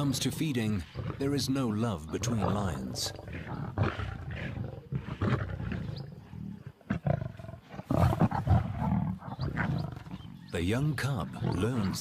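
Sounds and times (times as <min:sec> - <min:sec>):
lions growling and snarling: 0:00.0 - 0:12.0.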